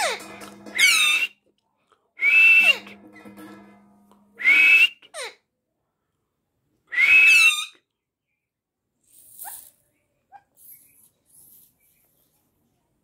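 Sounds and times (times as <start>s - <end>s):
parrot whistling calls: 7.0s - 7.8s.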